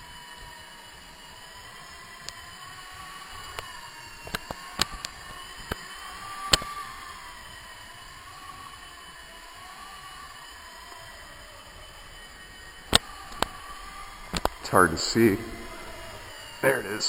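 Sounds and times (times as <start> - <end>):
rc helicopter rotor whine: 0.0 - 17.0
sharp clicks: 1.6 - 8.7, 10.8 - 16.6.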